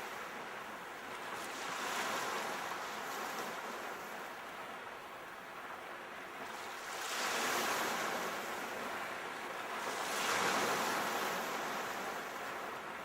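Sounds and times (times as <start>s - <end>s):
sea waves washing ashore: 0.0s - 13.0s.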